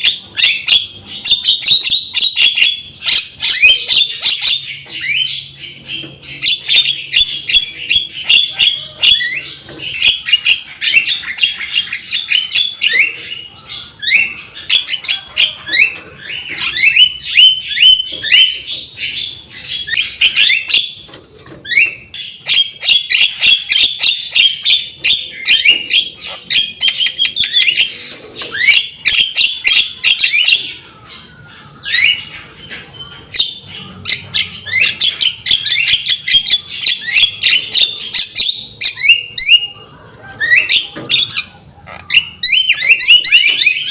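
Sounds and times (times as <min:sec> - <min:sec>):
myna chattering and whistling: 0:00.0 - 0:43.9.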